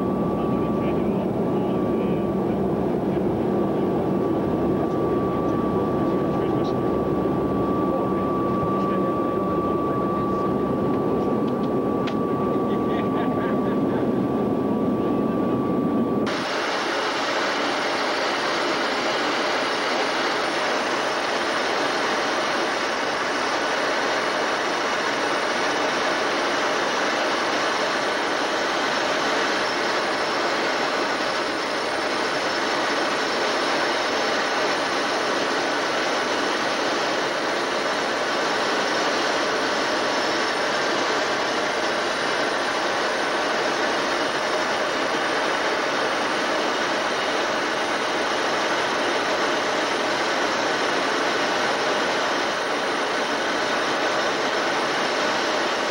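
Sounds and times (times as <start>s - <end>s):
aircraft jet noise with whine: 0.0s - 55.9s.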